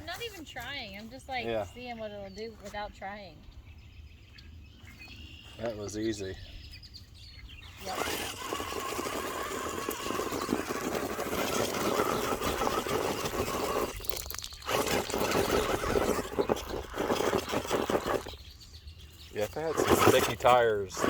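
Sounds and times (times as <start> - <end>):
electric motor whining: 7.7 - 18.4, 19.4 - 21.0
tyres crunching over rock: 7.8 - 18.5, 19.4 - 21.0.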